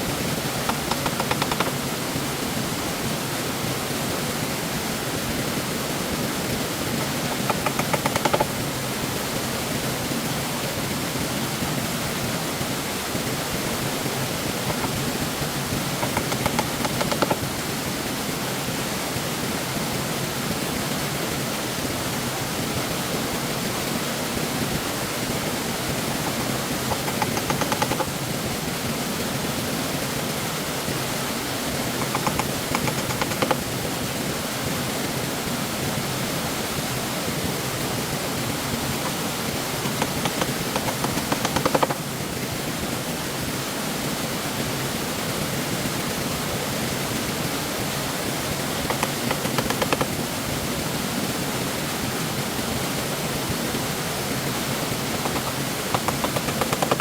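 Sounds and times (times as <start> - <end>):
stream water rushing: 0.0 - 57.0
rapid clicks: 0.4 - 1.8, 7.0 - 8.6, 16.0 - 17.5, 26.1 - 28.2, 32.0 - 33.7, 39.0 - 42.0, 48.8 - 50.2, 55.0 - 57.0.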